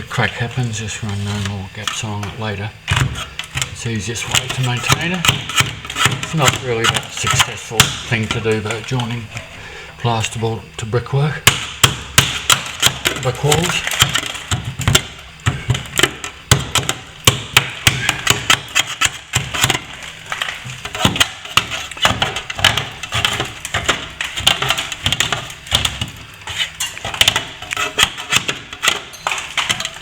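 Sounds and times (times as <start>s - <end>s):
hand tool clicks and knocks: 0.5s - 9.5s, 11.4s - 30.0s
tool rasping scrapes on plaster: 2.9s - 9.6s, 17.8s - 30.0s.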